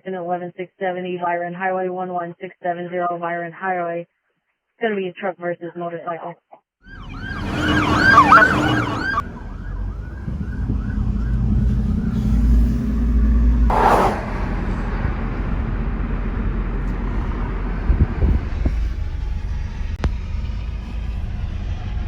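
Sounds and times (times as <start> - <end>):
emergency siren warbling: 6.8 - 13.7
vehicle engine and road noise: 6.9 - 22.0.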